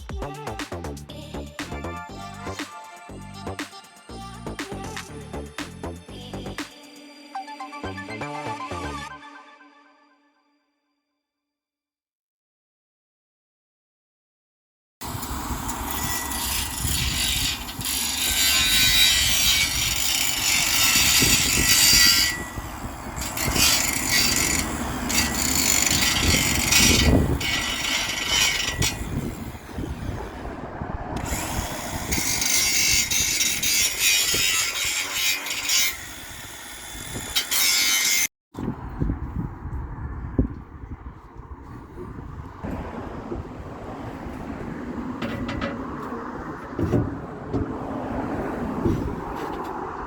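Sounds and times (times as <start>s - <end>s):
welder running on steel: 15.0s - 30.4s, 31.2s - 38.3s.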